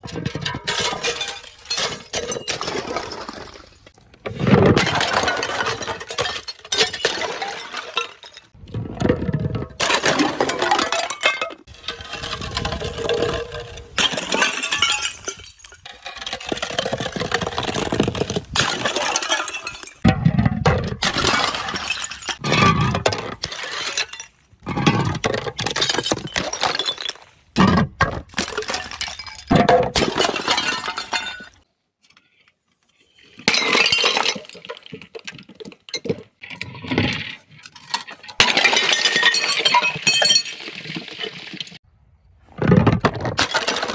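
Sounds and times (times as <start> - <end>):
glass bottles shattering: 0.2 - 3.9, 4.7 - 8.6, 9.8 - 11.7, 13.9 - 20.1, 20.8 - 22.4, 23.1 - 31.6, 33.2 - 36.3, 37.7 - 41.8.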